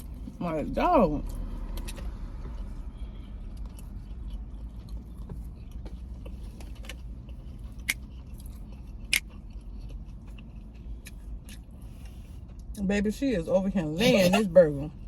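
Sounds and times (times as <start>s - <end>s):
person chewing food: 1.2s - 12.8s.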